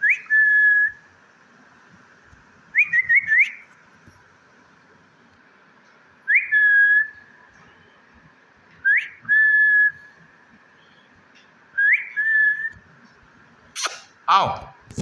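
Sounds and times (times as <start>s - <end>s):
whistled call: 0.0s - 1.0s, 2.8s - 3.7s, 6.3s - 7.2s, 8.8s - 10.1s, 11.8s - 12.8s.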